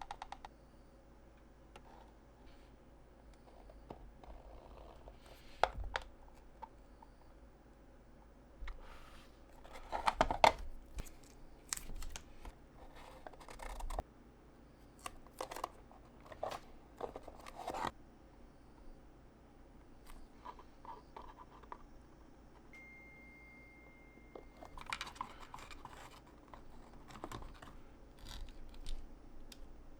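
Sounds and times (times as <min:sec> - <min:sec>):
scissors snipping: 0:13.0 - 0:14.0, 0:24.5 - 0:29.7.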